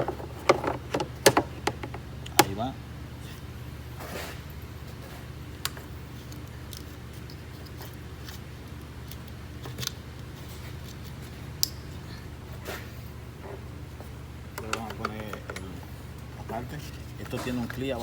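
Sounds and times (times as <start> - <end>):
plastic parts being handled: 0.0 - 2.5
steady low hum: 0.0 - 18.0.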